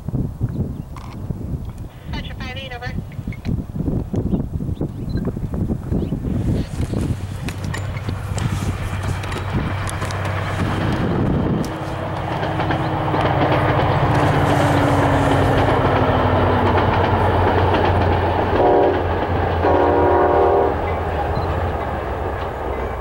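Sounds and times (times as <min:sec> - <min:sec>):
diesel train engine drone: 0:01.2 - 0:23.0
train wheels on rails: 0:05.2 - 0:23.0
train horn blasts: 0:18.5 - 0:20.9.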